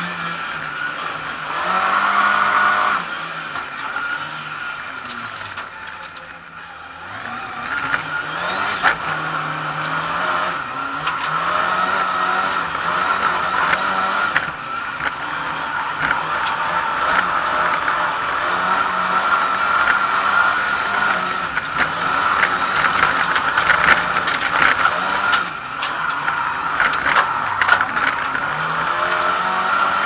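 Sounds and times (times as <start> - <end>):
car engine revving: 0.0 - 30.0
sharp knocks and rattles: 7.8 - 30.0.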